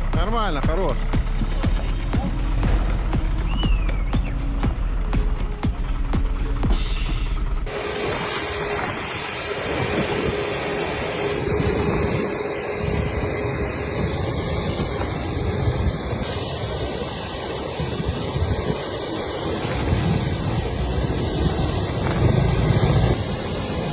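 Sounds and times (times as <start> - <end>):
wind buffeting microphone: 7.4 - 23.9.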